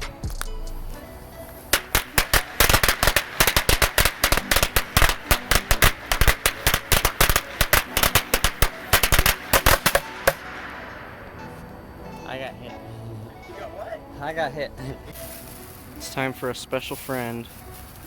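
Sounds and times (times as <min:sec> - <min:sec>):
firecrackers banging: 0:00.0 - 0:12.0.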